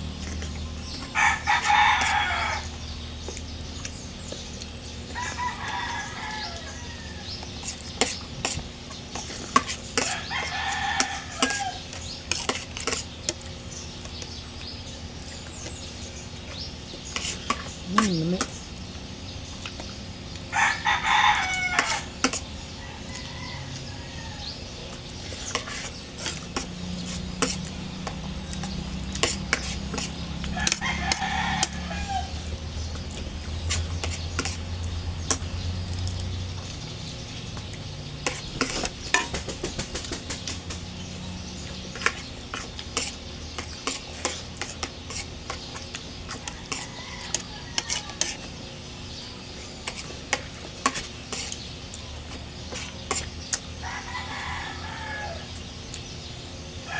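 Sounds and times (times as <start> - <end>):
rooster crowing: 1.0 - 2.8, 5.1 - 7.4, 10.0 - 11.9, 20.5 - 24.7, 30.3 - 32.6, 46.4 - 48.4, 53.8 - 55.6.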